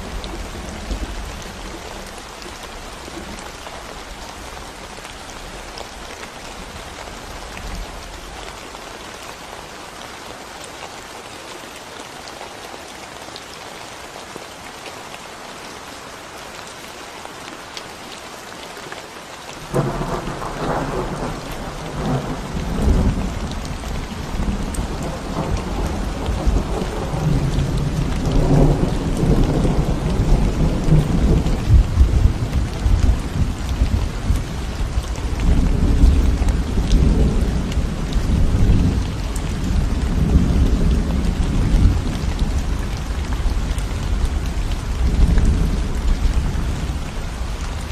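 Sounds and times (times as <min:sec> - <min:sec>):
rain on concrete road: 0:00.0 - 0:47.9
thunder rumbling: 0:19.6 - 0:47.9.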